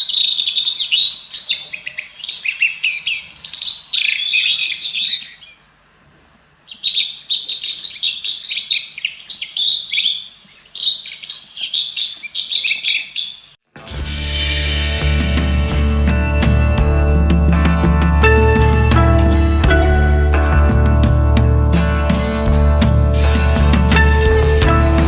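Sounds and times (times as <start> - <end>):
shrike singing scratchy notes: 13.8 - 25.0.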